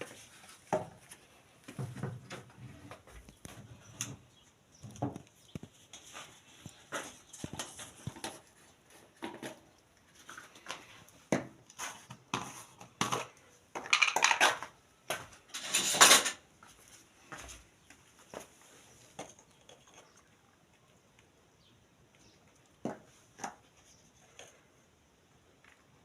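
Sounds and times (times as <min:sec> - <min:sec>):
dishes clinking and knocking: 0:13.8 - 0:14.5.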